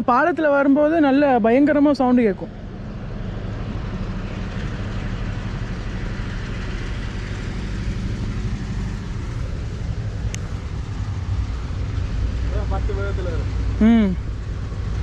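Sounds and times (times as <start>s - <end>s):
train engine low rumble: 0.0s - 15.0s
sharp tick: 10.3s - 10.5s.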